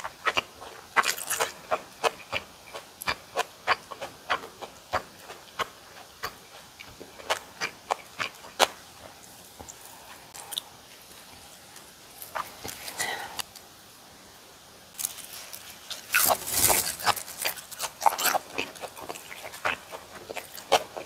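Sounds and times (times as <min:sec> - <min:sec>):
crunchy chewing clicks: 0:00.0 - 0:09.8, 0:15.0 - 0:21.0
wet chewing: 0:00.0 - 0:10.7, 0:15.0 - 0:21.0.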